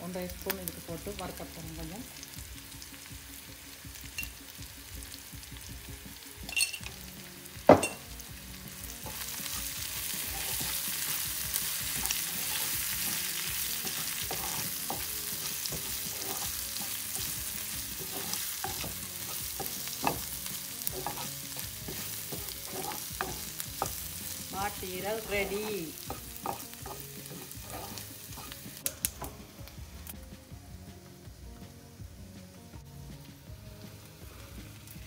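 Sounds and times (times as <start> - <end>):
meat sizzling in a frying pan: 0.0 - 35.0
wooden spoon scraping a pan: 9.0 - 28.6.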